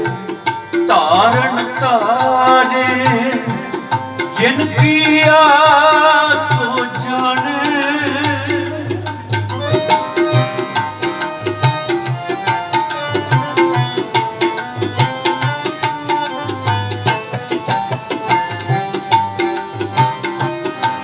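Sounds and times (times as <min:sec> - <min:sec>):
tabla playing fast rhythm: 0:00.0 - 0:21.0
melody of held notes: 0:08.7 - 0:21.0.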